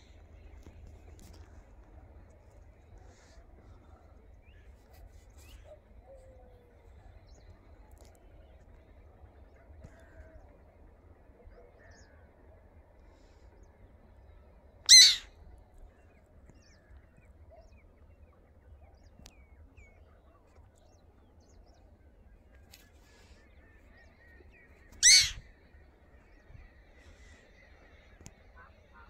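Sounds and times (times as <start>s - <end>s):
bird calling: 14.9s - 15.3s, 24.9s - 25.4s.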